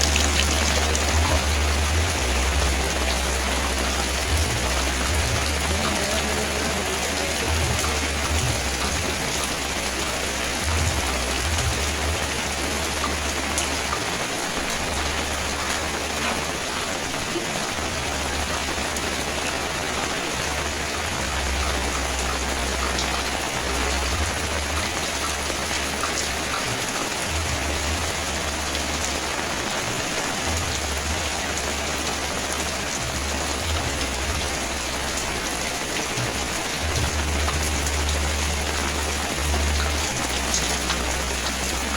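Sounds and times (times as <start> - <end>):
low rumble: 0.0 - 16.1
rain pattering on surfaces: 0.0 - 41.9.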